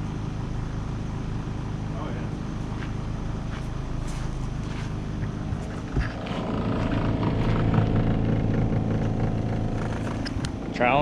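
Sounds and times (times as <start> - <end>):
motor humming: 4.5 - 11.0.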